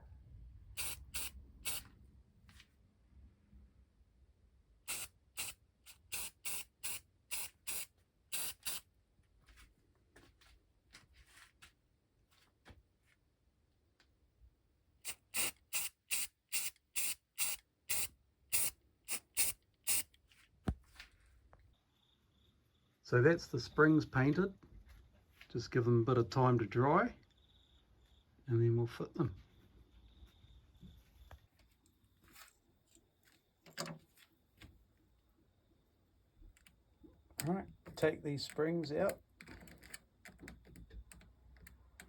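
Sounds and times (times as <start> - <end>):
airbrush spraying hissing bursts: 0.8 - 1.9, 4.9 - 8.8, 15.1 - 20.1.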